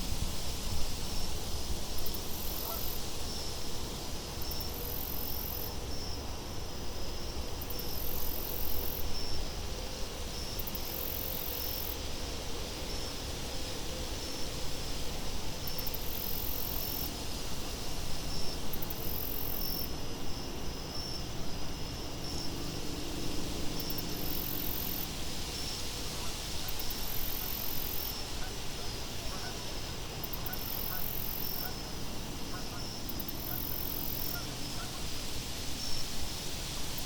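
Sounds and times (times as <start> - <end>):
wind: 0.0 - 37.0
very high insect trill: 1.9 - 12.1, 14.1 - 37.0
pulsing insect chirp: 1.9 - 13.1, 14.1 - 36.2.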